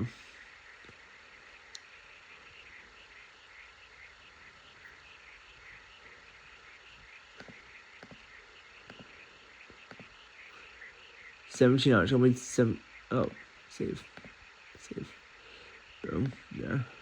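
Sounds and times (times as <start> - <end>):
rapid chirping chorus: 0.0 - 17.0.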